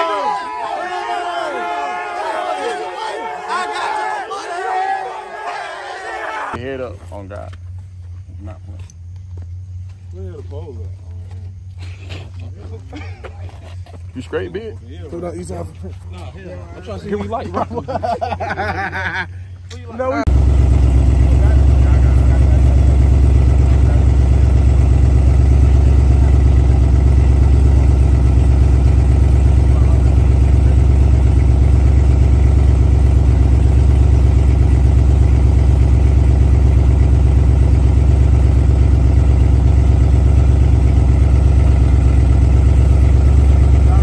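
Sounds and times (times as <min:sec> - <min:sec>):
car engine idling: 0:19.4 - 0:44.0.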